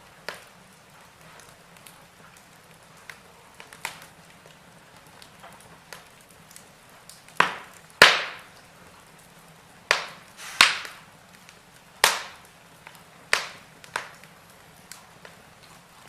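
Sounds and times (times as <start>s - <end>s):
faint steady hiss: 0.0s - 16.0s
firewood crackling and popping: 0.0s - 16.0s.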